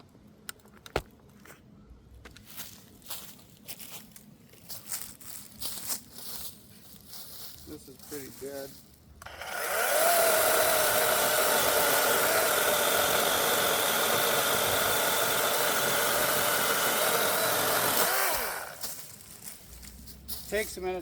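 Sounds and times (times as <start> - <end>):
electric chainsaw cutting branch: 9.2 - 19.0.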